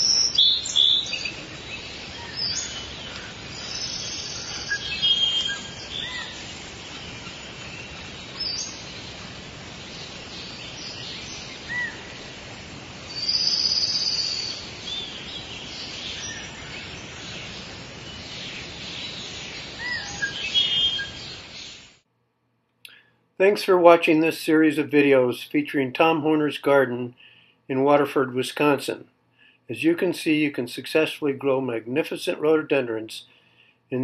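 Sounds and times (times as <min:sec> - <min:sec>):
high bird trill: 0:00.0 - 0:09.0, 0:13.1 - 0:21.8
songbirds chirping and singing: 0:00.0 - 0:12.4, 0:13.1 - 0:21.9
steady background hiss: 0:00.0 - 0:22.1, 0:22.9 - 0:34.0.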